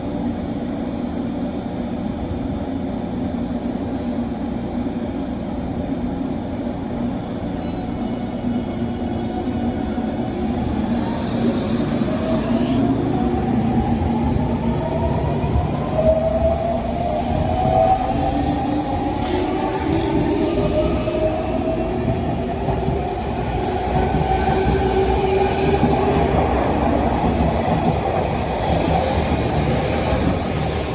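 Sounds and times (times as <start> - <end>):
train rumbling on rails: 0.0 - 30.9.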